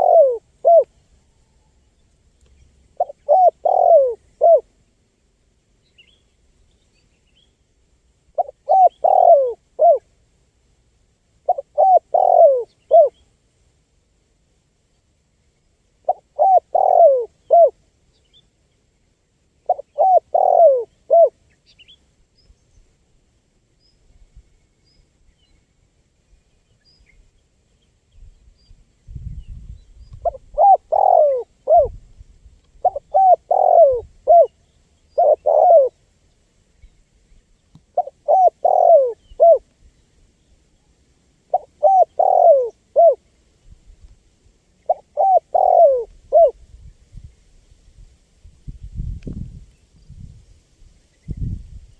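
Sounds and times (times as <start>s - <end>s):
dove cooing: 0.0s - 0.9s, 2.9s - 4.7s, 8.4s - 10.1s, 11.4s - 13.2s, 16.0s - 17.8s, 19.7s - 21.4s, 30.2s - 32.0s, 32.8s - 36.0s, 37.9s - 39.7s, 41.5s - 43.2s, 44.8s - 46.6s.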